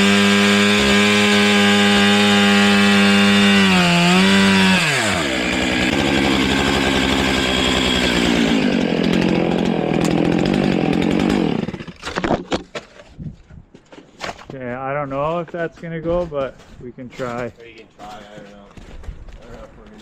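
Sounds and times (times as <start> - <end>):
chainsaw cutting wood: 0.0 - 12.8.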